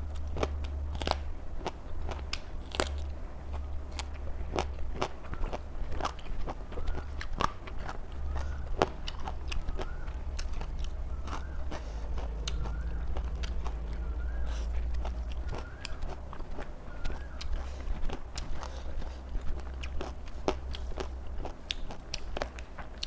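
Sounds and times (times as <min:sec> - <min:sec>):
chewing crunchy raw vegetables: 0:00.0 - 0:23.0.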